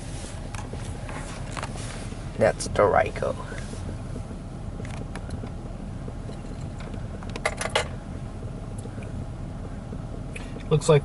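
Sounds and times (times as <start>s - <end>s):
car idling: 0.0s - 11.0s
sharp clicks or rattles: 6.3s - 8.0s.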